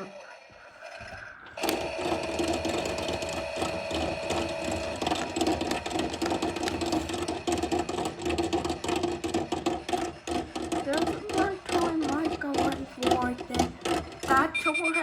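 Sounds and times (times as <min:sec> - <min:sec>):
washing machine running: 0:00.0 - 0:15.0
high tone: 0:14.3 - 0:15.0.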